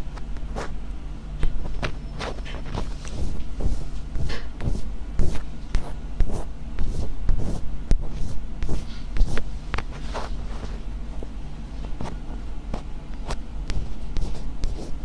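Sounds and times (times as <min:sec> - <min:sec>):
steady low hum: 0:00.0 - 0:15.0
crisp scratching strokes: 0:02.2 - 0:12.2.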